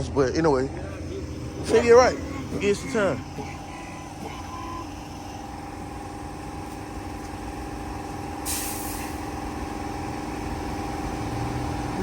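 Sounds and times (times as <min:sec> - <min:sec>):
vehicle engine running: 0:00.0 - 0:12.0
short burst of hiss: 0:08.4 - 0:09.2.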